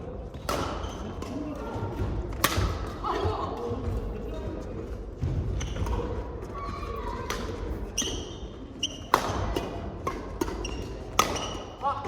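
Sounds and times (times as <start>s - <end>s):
racket striking shuttlecock: 0.4s - 1.4s, 2.3s - 2.9s, 7.2s - 8.2s, 8.9s - 11.9s
shoe squeaks on court floor: 8.0s - 9.1s.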